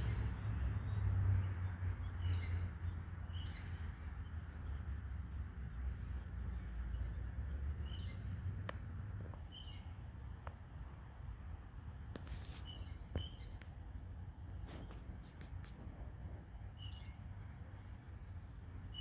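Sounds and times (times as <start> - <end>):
small birds chirping: 12.2 - 15.8.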